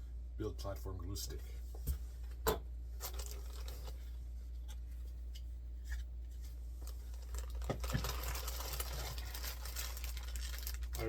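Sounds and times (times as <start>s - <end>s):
steady low hum: 0.0s - 11.0s
crinkly rustling: 3.0s - 4.2s, 5.9s - 11.0s
packaging rustling and clicks: 6.8s - 11.0s.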